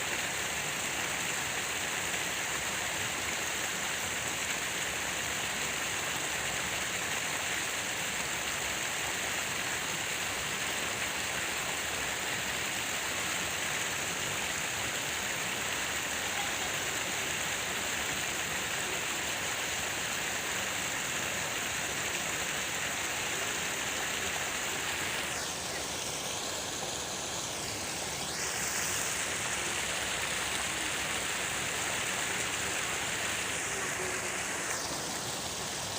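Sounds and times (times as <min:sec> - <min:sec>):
falling water splashing: 0:00.0 - 0:35.9.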